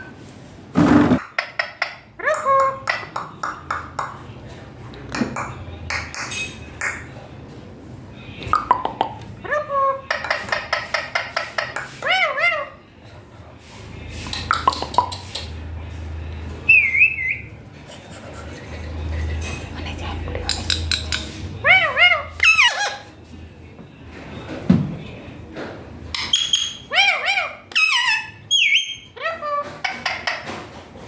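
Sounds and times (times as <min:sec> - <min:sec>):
parrot whistling and chattering: 0:08.6 - 0:12.8, 0:16.7 - 0:17.5, 0:21.6 - 0:23.1, 0:26.2 - 0:30.5.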